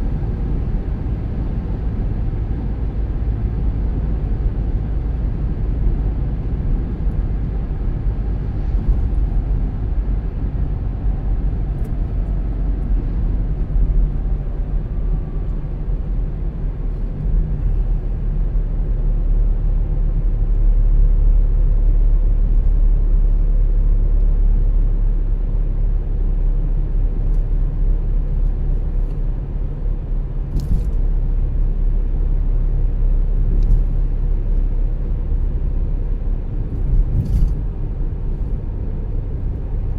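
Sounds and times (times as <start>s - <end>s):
tyre and engine rumble: 27.1s - 39.9s.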